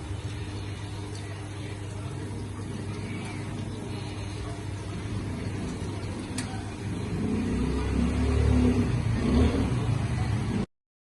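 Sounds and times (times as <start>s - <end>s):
espresso machine humming: 0.0s - 10.7s.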